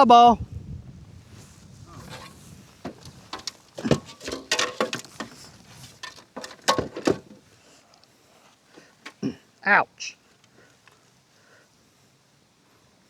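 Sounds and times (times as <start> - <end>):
knocks and clatters: 1.9 - 7.5.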